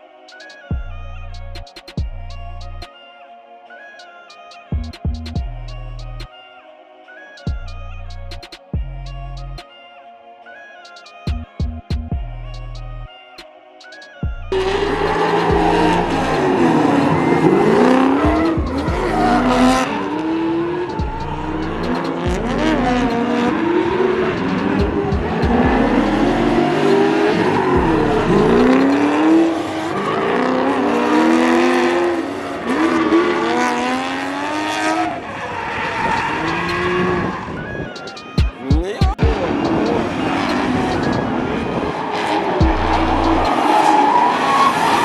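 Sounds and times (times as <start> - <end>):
bass line of music: 0.7 - 2.9, 4.7 - 6.3, 7.5 - 9.6, 11.3 - 13.1, 14.2 - 16.7, 17.8 - 19.8, 21.0 - 23.4, 24.4 - 26.8, 27.8 - 29.0, 42.6 - 43.6
car engines revving: 14.5 - 38.4, 39.2 - 45.0
tyres squealing: 35.4 - 41.3.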